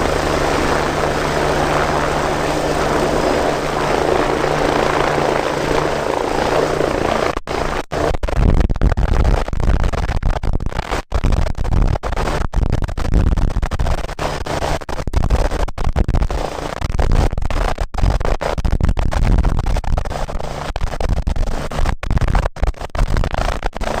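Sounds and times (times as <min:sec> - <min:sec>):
wind buffeting on microphone: 0:00.0 - 0:07.8
helicopter rotor beating: 0:00.0 - 0:08.1.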